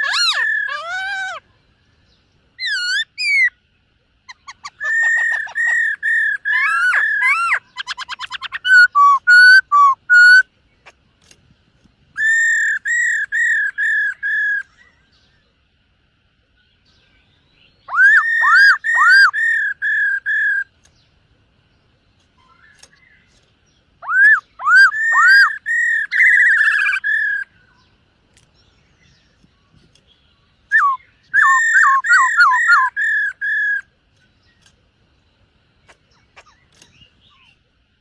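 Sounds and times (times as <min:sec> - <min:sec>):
bird singing whistled notes: 0:02.0 - 0:03.6, 0:04.3 - 0:10.5, 0:12.1 - 0:15.5, 0:16.6 - 0:21.1, 0:22.4 - 0:28.0, 0:28.6 - 0:34.7.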